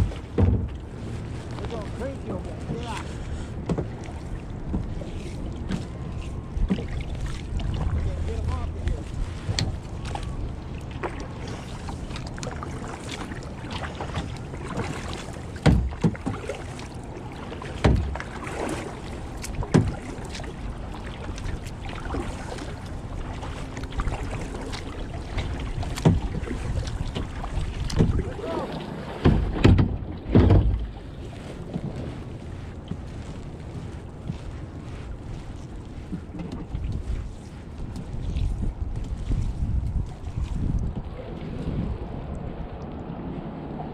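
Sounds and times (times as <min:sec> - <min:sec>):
paddle strokes: 0:00.0 - 0:43.9
water splashing against hull: 0:00.0 - 0:43.9
wind on microphone: 0:00.0 - 0:43.9
knocks and thumps: 0:00.2 - 0:00.8, 0:15.6 - 0:16.3, 0:29.2 - 0:30.9.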